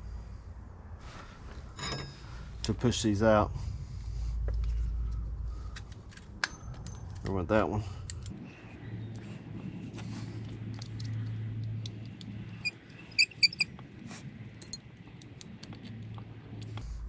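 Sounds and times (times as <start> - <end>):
metal tool clicking and clinking: 10.7 - 13.8, 14.6 - 16.8.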